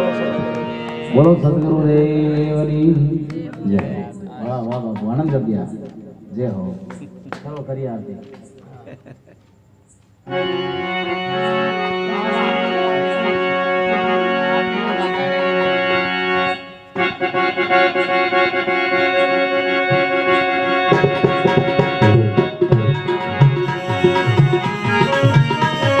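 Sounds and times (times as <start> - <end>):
harmonium playing: 0.0 - 7.5, 10.2 - 26.0
hand drum beats: 20.9 - 26.0.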